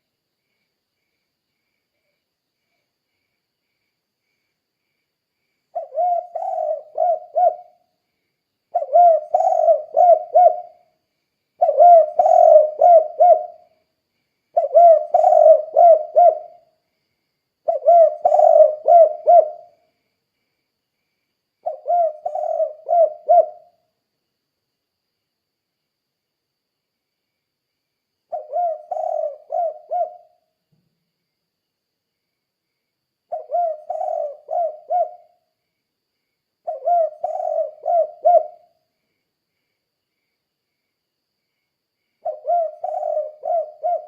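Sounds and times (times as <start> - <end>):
dove cooing: 5.7 - 7.8, 8.7 - 10.9, 11.6 - 13.7, 14.5 - 16.6, 17.7 - 19.8, 21.6 - 23.8, 28.3 - 30.4, 33.3 - 35.4, 36.6 - 38.7, 42.2 - 44.0.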